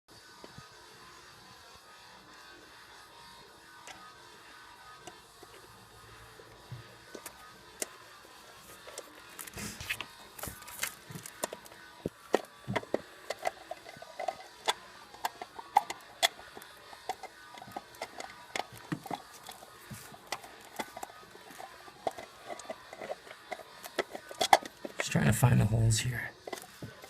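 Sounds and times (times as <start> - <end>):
distributor cap clicking and knocking: 12.3 - 25.0.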